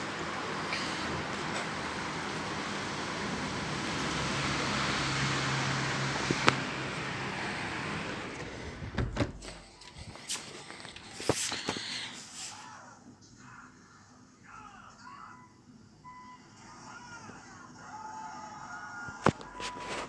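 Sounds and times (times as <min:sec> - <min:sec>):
tyres hissing on wet street: 0:00.0 - 0:08.2
vehicle engine hum: 0:00.0 - 0:11.2.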